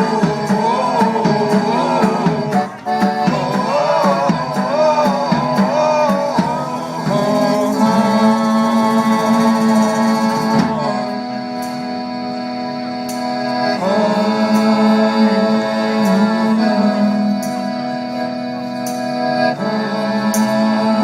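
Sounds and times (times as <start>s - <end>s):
folk band playing: 0.0s - 21.0s.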